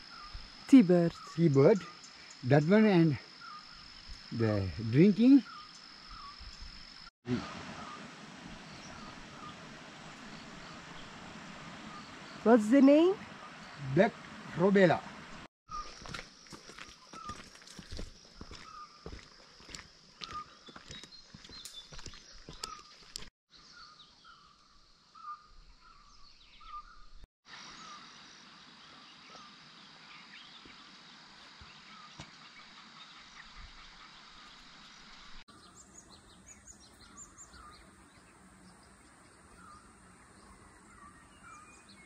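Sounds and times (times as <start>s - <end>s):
bird chirps: 15.7s - 19.3s, 20.2s - 27.2s, 35.5s - 42.0s.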